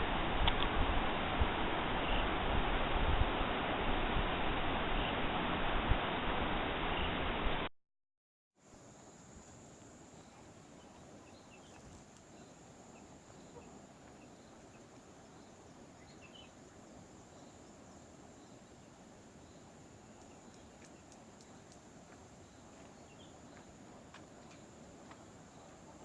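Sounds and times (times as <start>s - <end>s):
crickets droning: 8.6s - 26.0s
low rushing hiss: 8.6s - 26.0s
faint bird chirps: 8.7s - 26.0s.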